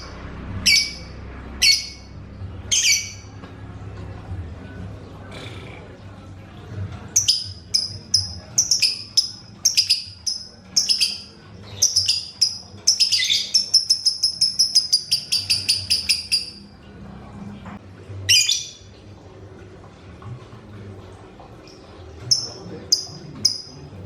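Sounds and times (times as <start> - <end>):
lovebird chirping and chattering: 0.0 - 3.3, 7.2 - 16.7, 18.3 - 18.9, 22.3 - 23.9.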